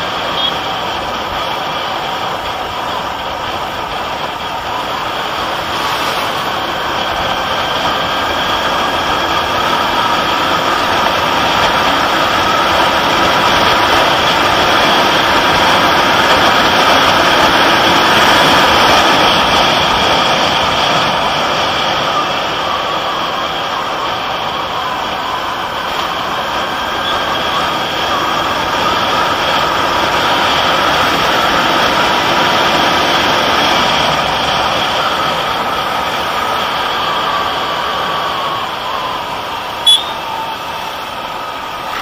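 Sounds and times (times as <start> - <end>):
rushing wind noise: 0.0 - 42.0.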